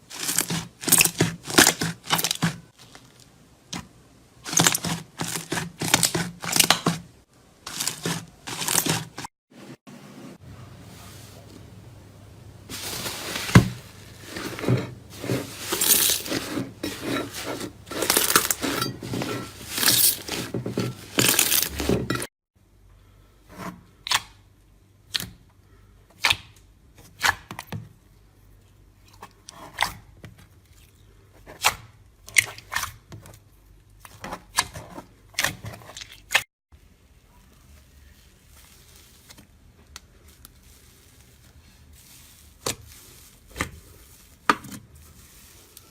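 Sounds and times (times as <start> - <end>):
sharp crunches: 7.7 - 9.3.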